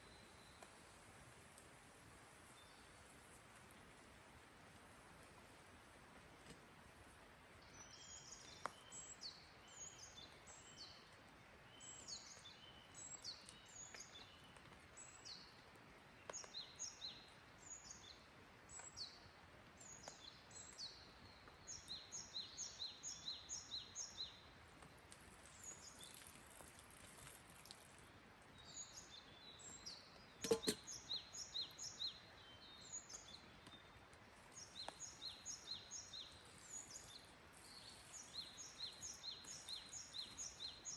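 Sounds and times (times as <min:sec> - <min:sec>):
songbirds chirping: 0:00.0 - 0:40.9
sharp knock: 0:30.4 - 0:30.8.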